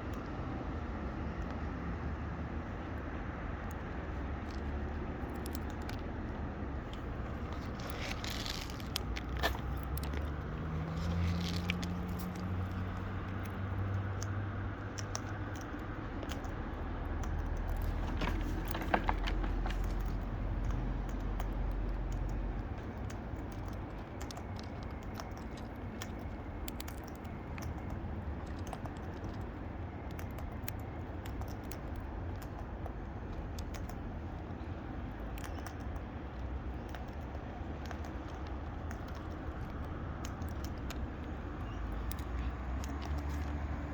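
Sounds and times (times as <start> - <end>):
vehicle engine rumble passing: 0.2 - 29.9, 37.4 - 43.9
parrots crunching seeds: 3.6 - 43.9.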